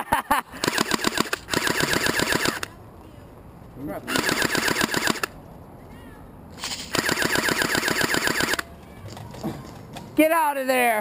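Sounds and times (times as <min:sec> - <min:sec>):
airsoft rifle full-auto bursts: 0:00.6 - 0:02.7, 0:04.1 - 0:05.4, 0:06.6 - 0:08.6.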